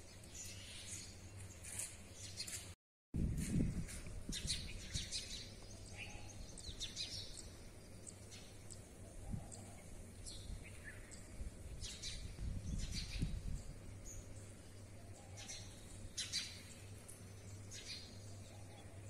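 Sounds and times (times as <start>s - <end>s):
birds chirping: 4.2s - 19.0s.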